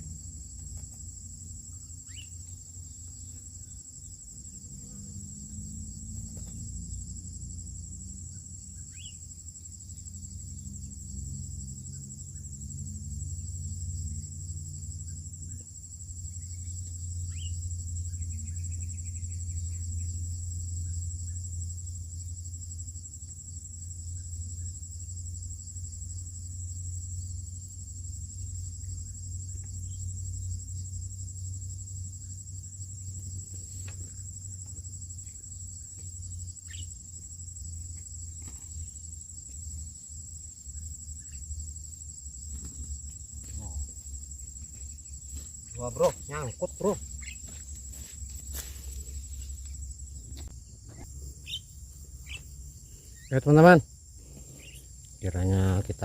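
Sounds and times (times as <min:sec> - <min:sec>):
low continuous rumble: 0:00.0 - 0:55.4
insect chorus drone: 0:00.0 - 0:56.0
faint bird chirps: 0:02.0 - 0:02.5, 0:08.8 - 0:09.2, 0:16.4 - 0:20.1, 0:50.9 - 0:53.4.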